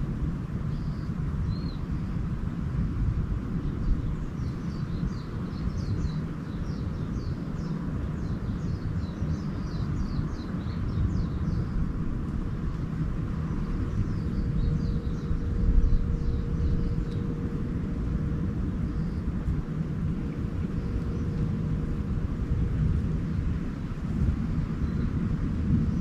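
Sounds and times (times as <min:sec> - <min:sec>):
faint steady hum: 0:00.0 - 0:26.0
steady low rumble: 0:00.0 - 0:26.0
small birds chirping: 0:00.7 - 0:02.1, 0:03.6 - 0:12.0, 0:12.6 - 0:17.7.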